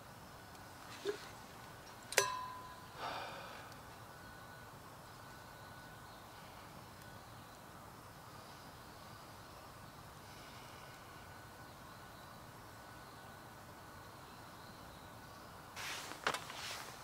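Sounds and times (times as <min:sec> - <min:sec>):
faint steady hush: 0:00.0 - 0:17.0
sharp metallic clink: 0:02.1 - 0:03.0.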